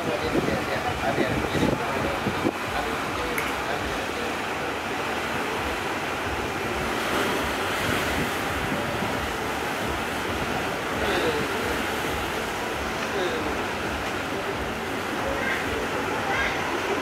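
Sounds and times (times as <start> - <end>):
strong wind on microphone: 0.0 - 3.3, 5.6 - 12.2
choppy sea waves: 0.0 - 17.0.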